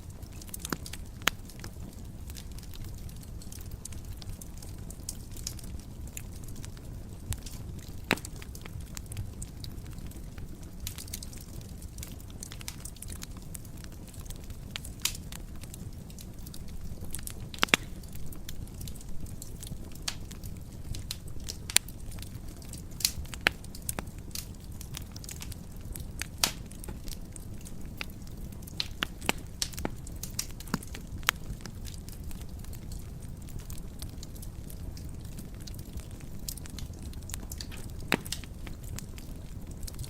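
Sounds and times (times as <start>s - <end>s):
fire low rumble: 0.0s - 40.0s
wood fire crackling and popping: 0.0s - 40.0s.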